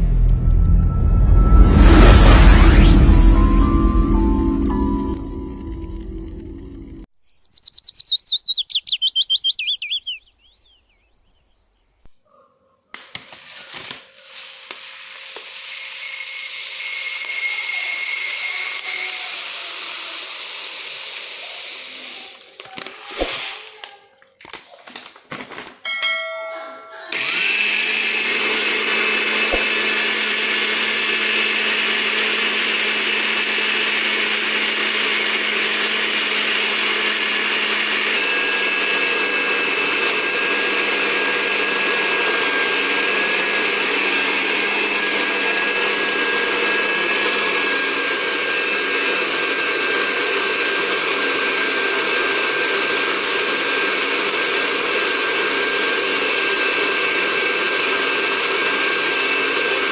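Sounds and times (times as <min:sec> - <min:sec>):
blender grinding bird feed: 0:13.0 - 0:23.7, 0:27.1 - 0:59.9.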